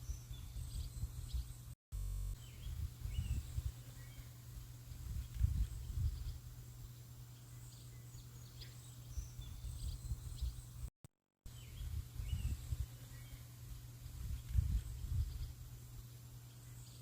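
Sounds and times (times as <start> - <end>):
birds chirping: 2.4 - 10.9.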